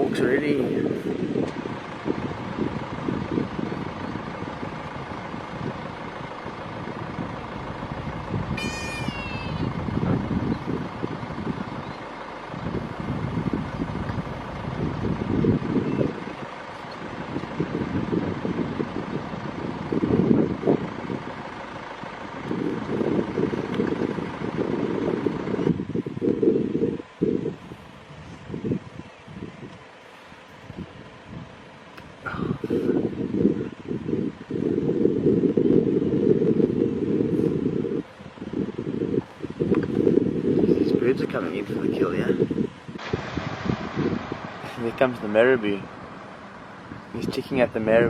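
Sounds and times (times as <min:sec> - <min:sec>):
gusting rumble: 0:00.0 - 0:48.0
vehicle engine running: 0:00.0 - 0:48.0
short high falling call: 0:08.6 - 0:09.8.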